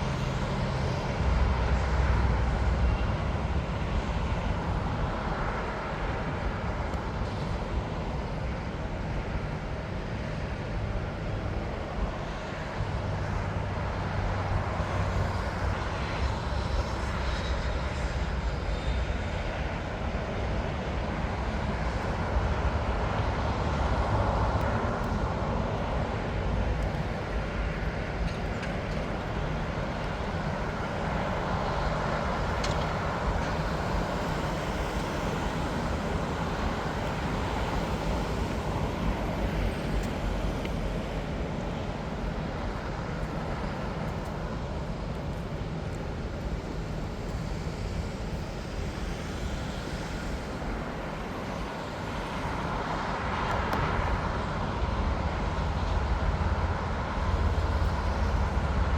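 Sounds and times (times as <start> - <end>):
jet engines rumbling: 0.0 - 58.9.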